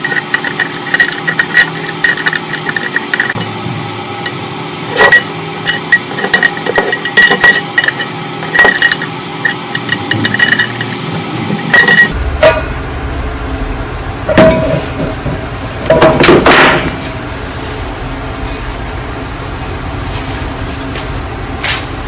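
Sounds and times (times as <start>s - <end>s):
hammer striking metal frying pan: 11.8s - 12.9s.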